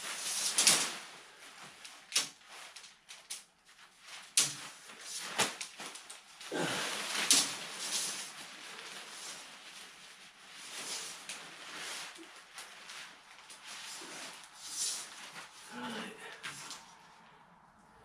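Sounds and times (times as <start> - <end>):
tent fabric rustling: 0.0 - 18.0.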